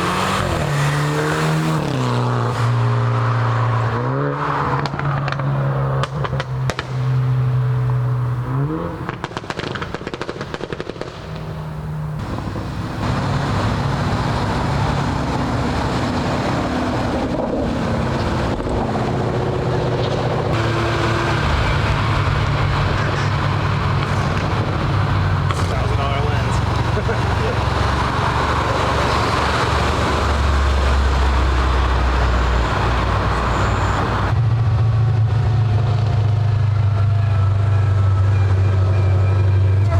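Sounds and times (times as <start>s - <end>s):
car engine revving: 0.0s - 39.9s
exhaust crackles and pops: 4.7s - 7.6s, 8.4s - 39.9s
engine running steadily: 11.4s - 39.9s
broad rushing noise: 12.1s - 36.8s.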